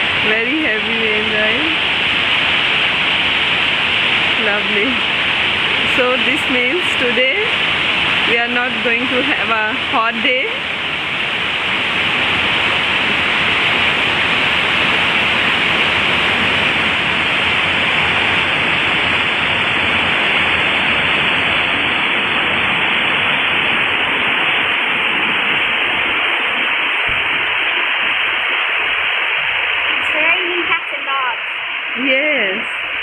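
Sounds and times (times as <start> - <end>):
heavy rain pouring: 0.0 - 33.0.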